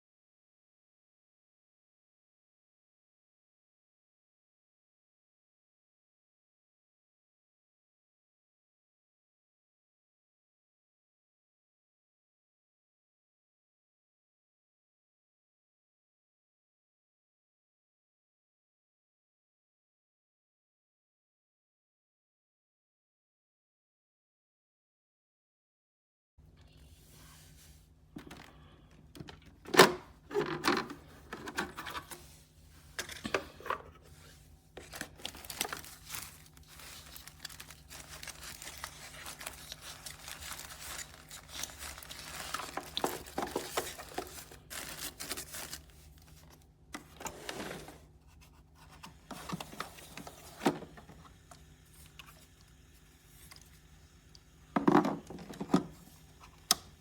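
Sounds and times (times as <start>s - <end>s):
faint steady hum: 26.4s - 57.0s
crinkling handling noises: 27.0s - 53.8s.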